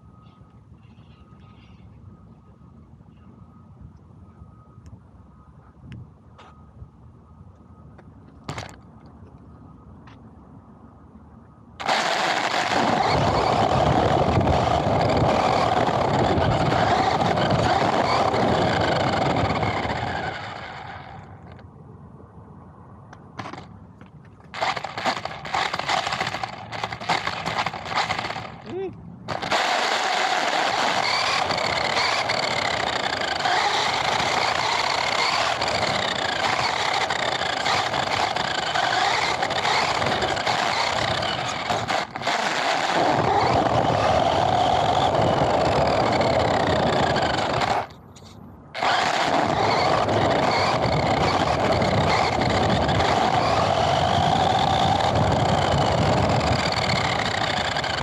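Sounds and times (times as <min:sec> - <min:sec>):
radio-controlled car whining: 0:11.8 - 0:21.6, 0:24.5 - 0:28.6, 0:29.3 - 0:58.0.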